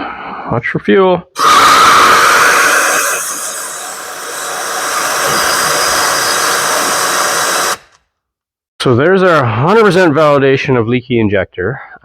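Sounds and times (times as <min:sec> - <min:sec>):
air hissing from spark plug hole: 0:01.4 - 0:08.0.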